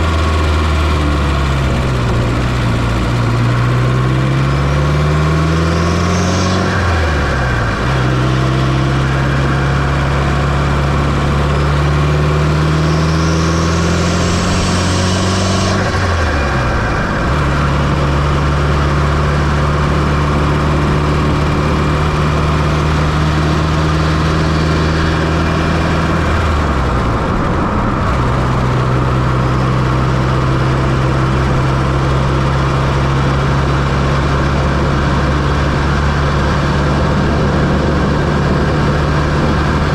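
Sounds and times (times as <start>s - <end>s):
car engine pulling under load: 0.0s - 39.9s
turbocharger whine: 0.0s - 39.9s.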